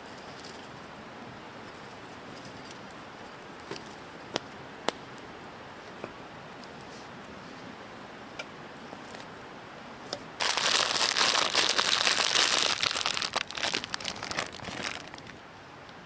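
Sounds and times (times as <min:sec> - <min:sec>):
wrapper crinkling: 0:10.4 - 0:15.4.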